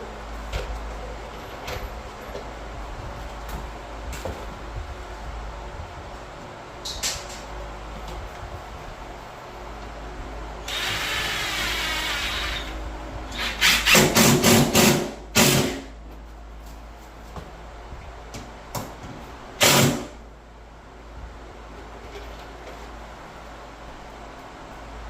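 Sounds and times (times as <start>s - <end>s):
power drill running: 10.6s - 15.8s.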